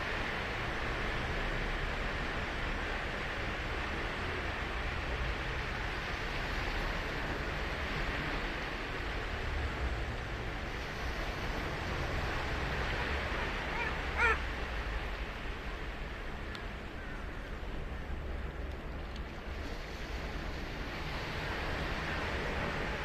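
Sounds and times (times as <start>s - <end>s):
surf washing onto beach: 0.0s - 23.0s
short high-pitched cry: 13.7s - 14.4s.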